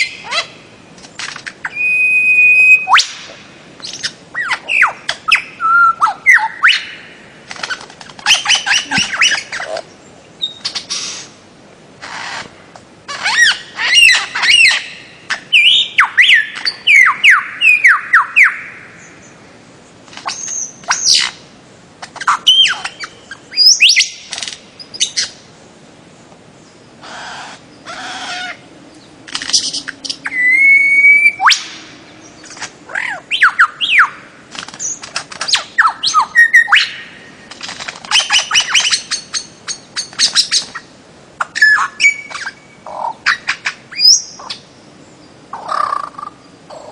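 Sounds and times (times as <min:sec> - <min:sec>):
bird calling sharp notes: 0:00.0 - 0:11.4, 0:13.1 - 0:19.1, 0:29.3 - 0:37.4.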